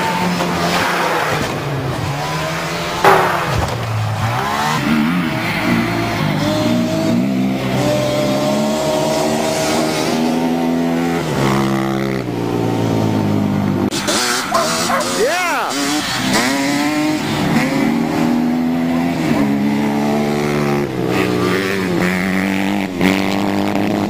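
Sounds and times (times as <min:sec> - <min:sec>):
vehicle engine revving: 0:00.0 - 0:24.0
loud thump: 0:03.0 - 0:04.3.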